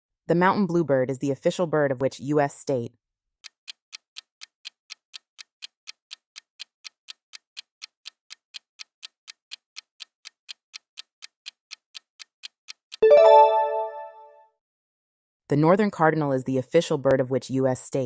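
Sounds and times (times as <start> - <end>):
countdown clock ticking: 3.5 - 14.3.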